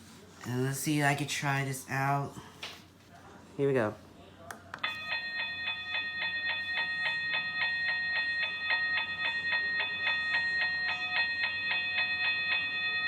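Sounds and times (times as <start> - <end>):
mechanical bell ringing rapidly: 4.9 - 13.0.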